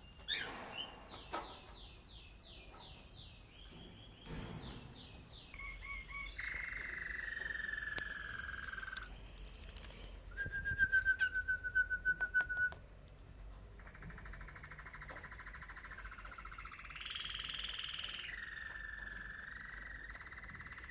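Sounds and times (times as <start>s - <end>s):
canary singing: 0.0s - 9.3s, 13.8s - 20.9s
sharp clicks: 6.8s - 10.1s.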